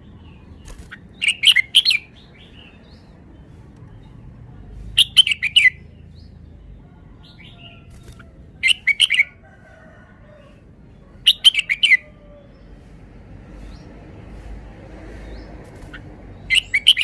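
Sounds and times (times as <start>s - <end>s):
bird singing whistled notes: 16.5s - 17.0s.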